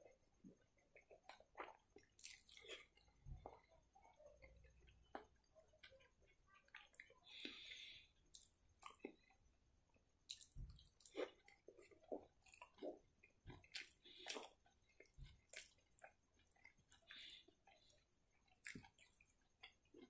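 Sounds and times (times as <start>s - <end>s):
close-miked chewing: 0.0s - 20.0s
wet mouth clicks and smacks: 10.3s - 17.9s.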